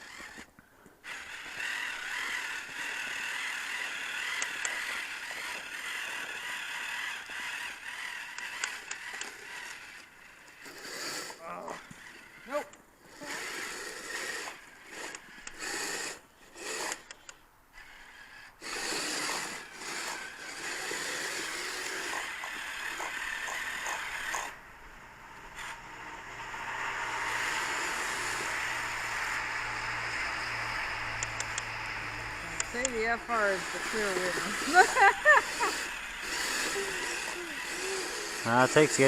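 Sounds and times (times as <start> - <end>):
small electric motors grinding: 0.0 - 39.0
low hum: 24.6 - 38.4.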